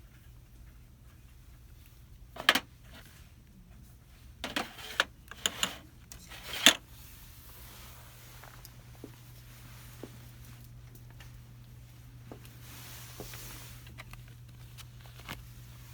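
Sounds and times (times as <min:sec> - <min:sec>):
steady low hum: 0:00.0 - 0:15.9
handling noise rustling and knocking: 0:02.4 - 0:03.2, 0:04.4 - 0:06.8.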